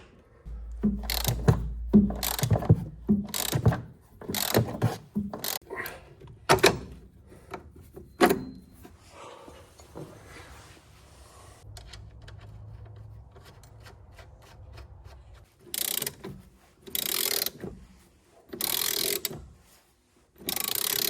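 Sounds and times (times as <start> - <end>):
ratchet clicking quickly: 1.0 - 3.8, 18.6 - 19.3, 20.5 - 21.0.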